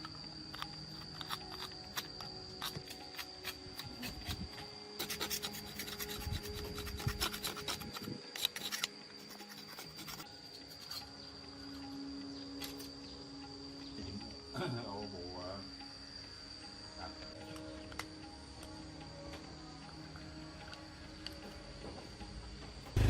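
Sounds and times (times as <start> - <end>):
hand tool scraping and rasping: 0.0 - 11.1.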